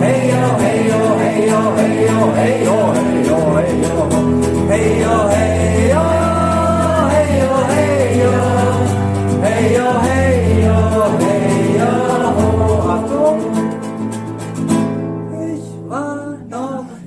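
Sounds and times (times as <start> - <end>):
person singing: 0.0 - 14.2, 15.2 - 17.0
strummed acoustic guitar: 0.0 - 17.0.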